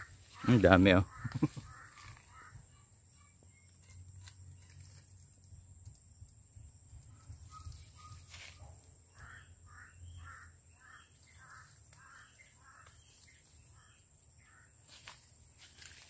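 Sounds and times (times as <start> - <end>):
plants rustling and snapping: 14.9 - 16.0.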